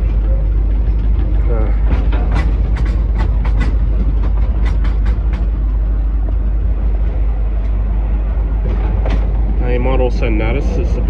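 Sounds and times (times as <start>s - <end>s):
train rumbling on rails: 0.0s - 11.0s
sharp clicks of wheels: 1.9s - 7.8s.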